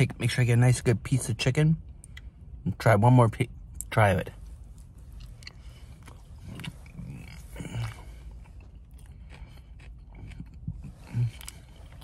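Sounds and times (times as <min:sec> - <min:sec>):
person chewing: 0:04.4 - 0:12.0.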